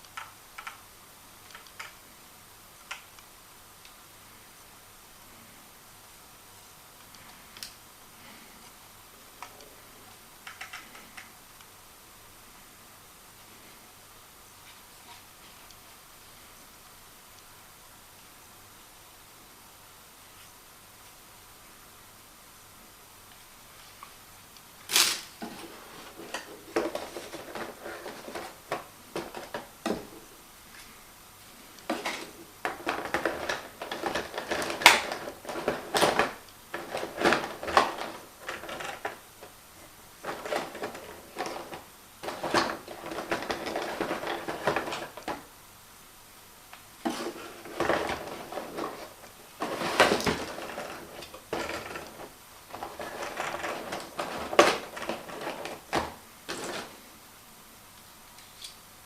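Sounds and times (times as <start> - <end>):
plastic parts clicking and knocking: 0.0 - 0.8, 10.4 - 11.3, 25.4 - 30.2, 31.8 - 39.6, 40.2 - 45.5, 47.0 - 56.9.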